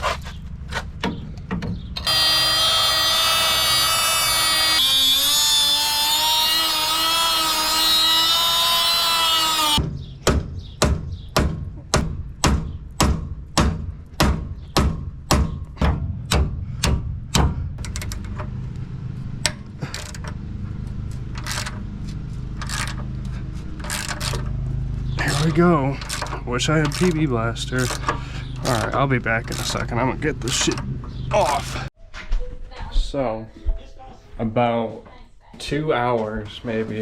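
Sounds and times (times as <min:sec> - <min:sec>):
loud whining tone: 0:02.0 - 0:09.8
hammer blows on metal fitting: 0:14.2 - 0:17.9.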